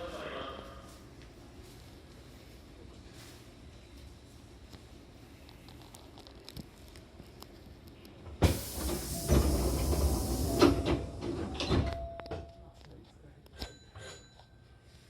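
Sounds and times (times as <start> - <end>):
pneumatic door air hiss: 8.4 - 11.2.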